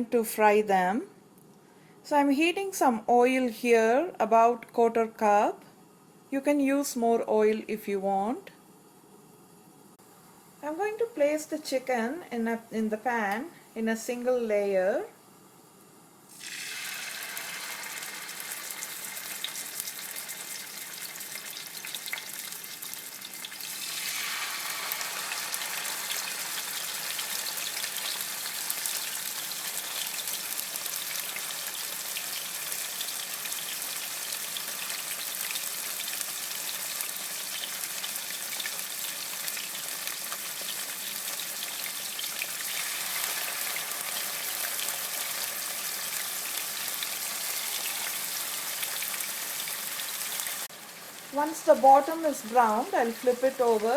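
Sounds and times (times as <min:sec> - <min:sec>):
meat sizzling in hot oil: 0:16.3 - 0:53.9.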